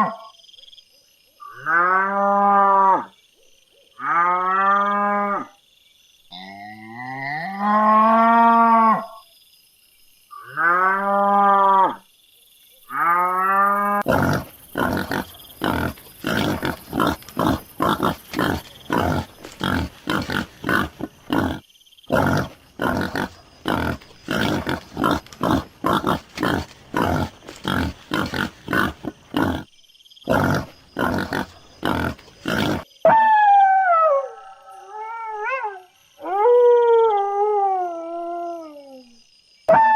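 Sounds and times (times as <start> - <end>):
cattle mooing: 14.0 - 29.6
animal grunts: 14.0 - 29.7, 30.3 - 32.9.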